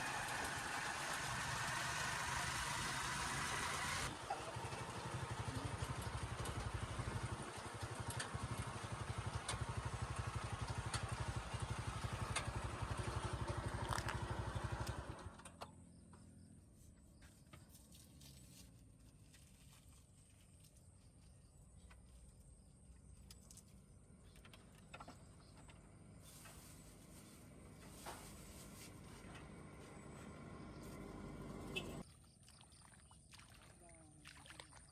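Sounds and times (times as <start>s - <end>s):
engine running: 0.0s - 15.7s, 23.9s - 32.0s.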